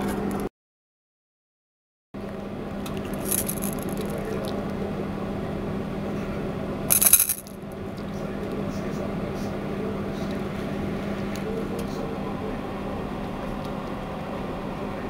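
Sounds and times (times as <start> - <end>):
metallic clinks: 3.2 - 4.1, 6.9 - 7.5.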